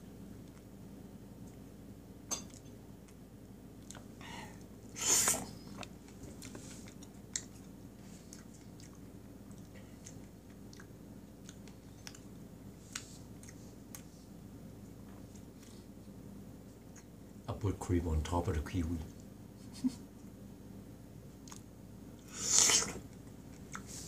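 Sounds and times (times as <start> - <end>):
wet chewing: 5.3 - 14.1, 21.4 - 21.7.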